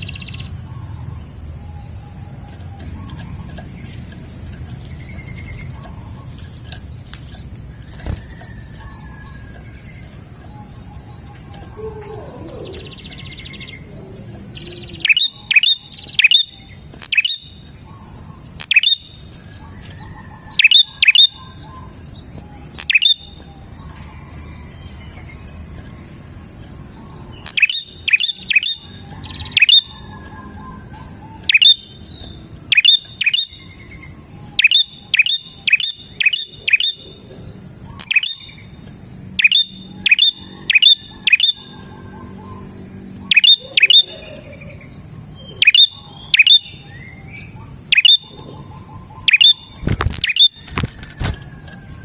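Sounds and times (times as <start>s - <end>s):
bird singing sharp chirps: 7.8s - 19.2s, 20.2s - 24.1s, 26.9s - 37.1s, 37.8s - 50.6s
high-pitched drone: 10.5s - 16.7s, 39.5s - 46.9s.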